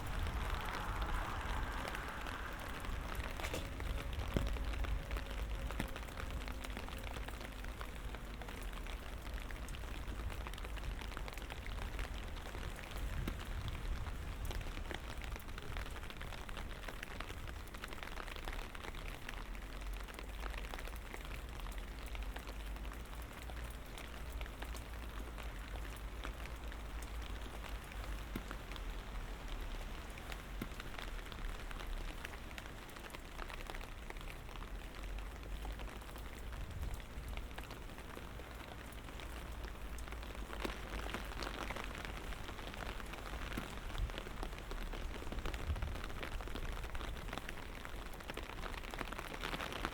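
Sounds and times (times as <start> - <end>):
rain hiss: 0.0 - 17.5
raindrops ticking on hard surfaces: 0.0 - 49.9.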